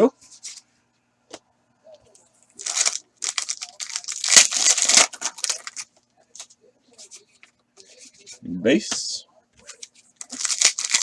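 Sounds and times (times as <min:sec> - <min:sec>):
foil wrapper crinkling: 0:02.6 - 0:05.9, 0:09.7 - 0:11.0
foil wrapper tearing: 0:02.6 - 0:05.9, 0:10.2 - 0:11.0.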